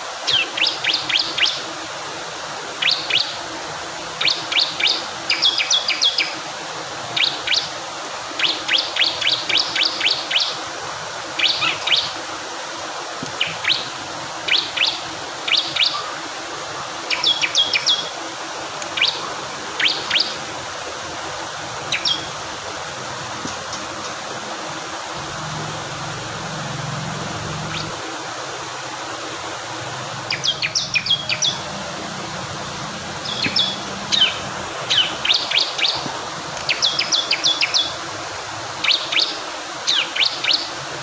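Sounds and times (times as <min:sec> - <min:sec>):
flowing water: 0:00.0 - 0:41.0
bird chirping: 0:18.9 - 0:20.4, 0:21.8 - 0:22.4, 0:25.2 - 0:28.0, 0:30.2 - 0:31.7, 0:33.2 - 0:36.0, 0:36.7 - 0:38.0.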